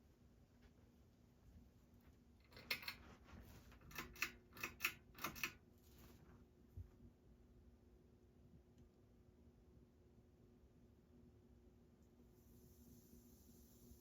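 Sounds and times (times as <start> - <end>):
pull-chain switch clicks: 3.9 - 5.6.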